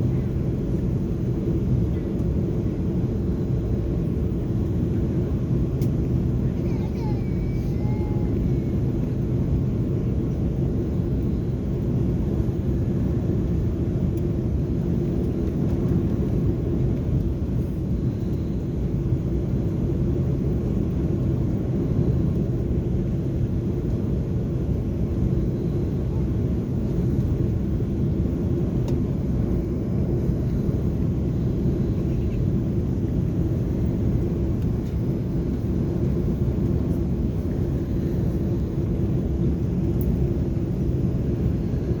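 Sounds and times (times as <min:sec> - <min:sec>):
airliner cabin rumble: 0:00.0 - 0:42.0.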